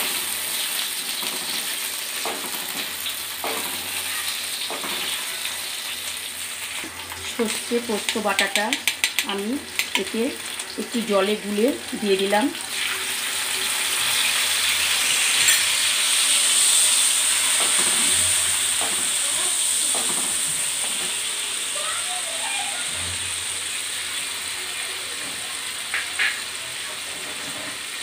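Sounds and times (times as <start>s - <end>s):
paste sizzling in hot oil: 0.0s - 28.0s
metal spatula clicking on pan: 7.5s - 10.2s.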